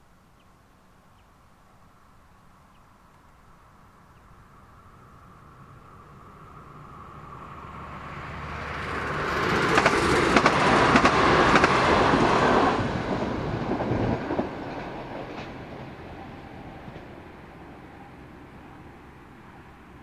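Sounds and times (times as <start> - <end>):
train passing at speed: 4.0 - 20.0
wheels clicking over rail joints: 8.7 - 17.6.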